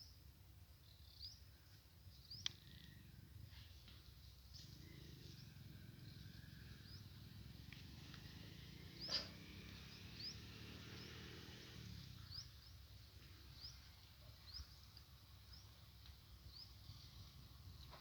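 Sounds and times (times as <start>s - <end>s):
small bird chirping: 4.5s - 17.4s.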